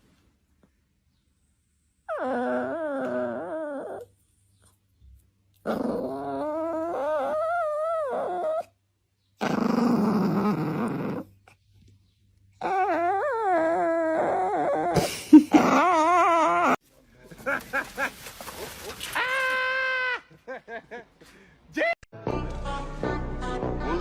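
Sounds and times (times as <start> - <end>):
dog growling call: 2.1 - 4.1, 5.6 - 8.7, 9.4 - 11.5
dog whine-howling: 2.1 - 4.1, 5.7 - 8.7, 12.6 - 16.8.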